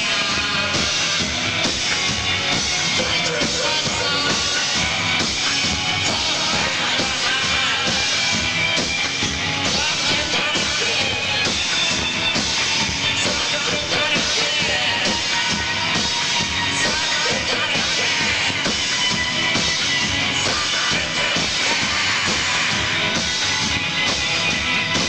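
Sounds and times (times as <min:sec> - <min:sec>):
drum kit beat: 0:00.0 - 0:25.0
rock band playing live: 0:00.0 - 0:25.0.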